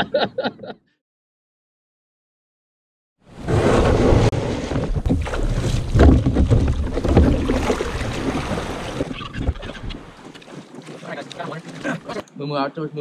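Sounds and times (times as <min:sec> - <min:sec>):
water sloshing and splashing: 0:03.4 - 0:12.3.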